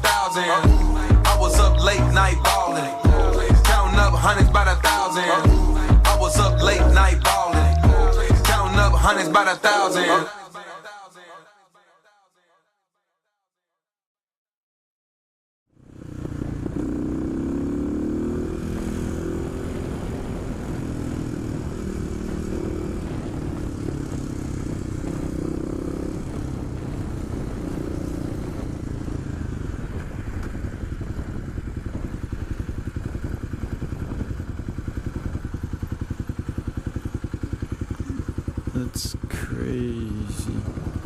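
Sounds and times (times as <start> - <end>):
motorcycle engine running at low revs: 0.0 - 4.9, 5.5 - 9.1, 15.7 - 41.0.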